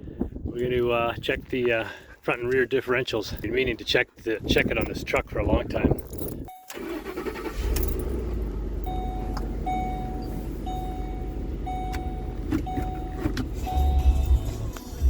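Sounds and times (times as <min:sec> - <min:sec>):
dashboard warning chime beeping: 0:06.4 - 0:08.2, 0:08.8 - 0:14.6
truck engine running: 0:06.7 - 0:15.0.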